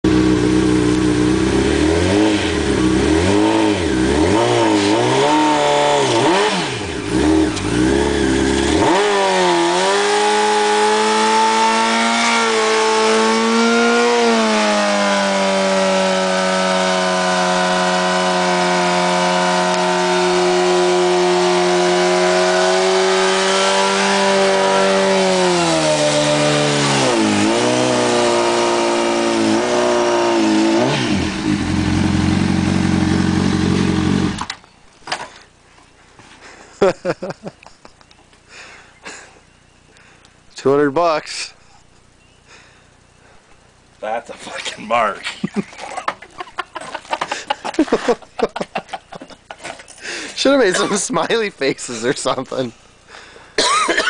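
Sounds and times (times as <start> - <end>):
motorcycle engine revving: 0.0 - 34.6.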